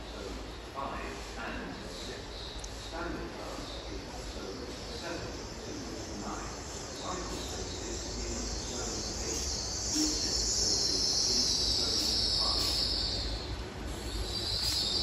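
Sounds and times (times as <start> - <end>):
low train rumble: 0.0 - 15.0
high-pitched train squeal: 5.5 - 15.0.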